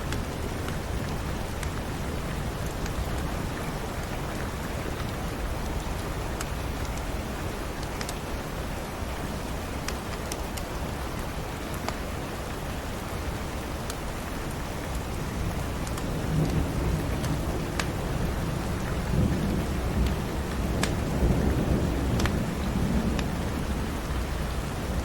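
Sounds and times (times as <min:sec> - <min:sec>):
wood fire crackling: 0:00.0 - 0:08.3, 0:13.6 - 0:23.4
steady rain: 0:00.0 - 0:25.0
thunder rumbling: 0:15.3 - 0:25.0.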